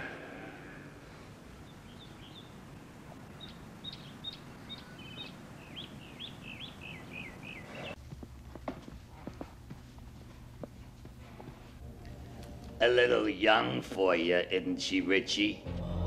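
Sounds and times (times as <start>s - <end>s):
birds chirping: 0.0s - 12.2s
faint outdoor hush: 0.0s - 15.7s.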